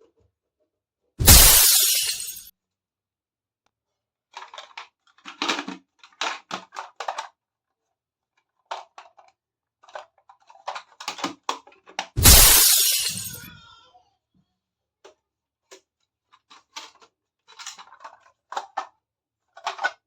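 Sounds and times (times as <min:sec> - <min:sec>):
plastic toy pieces clicking: 0:04.4 - 0:07.4, 0:08.5 - 0:12.0, 0:19.5 - 0:20.0.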